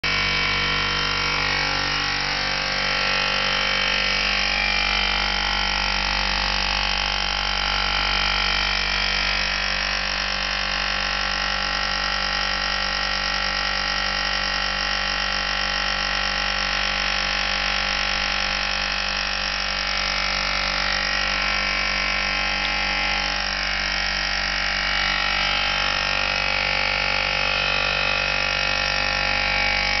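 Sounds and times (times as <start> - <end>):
compressor humming: 0.0 - 30.0.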